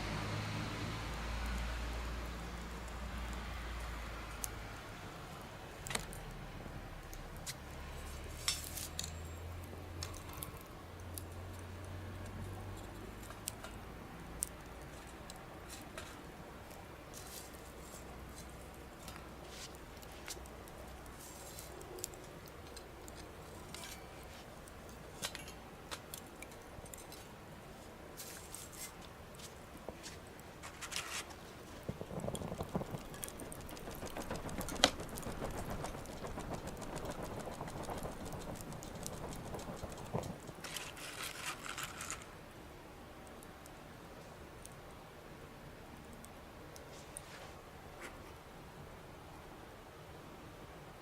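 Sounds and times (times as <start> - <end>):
campfire crackling: 0.6 - 45.1
faint low rumble: 31.5 - 41.2.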